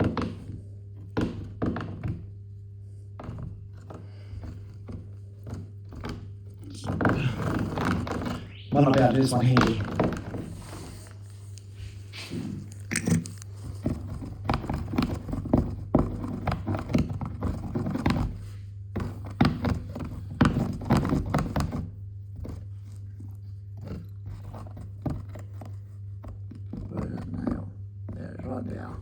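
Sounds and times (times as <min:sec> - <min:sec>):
tool chipping and scraping plaster: 0:00.0 - 0:29.0
low hum: 0:06.4 - 0:13.8.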